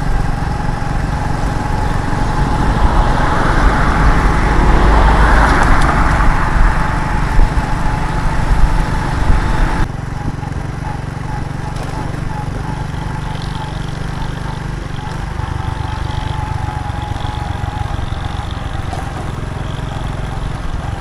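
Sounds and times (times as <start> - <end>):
wind rumble on microphone: 0.0 - 10.5
motorcycle engine drone: 0.0 - 21.0.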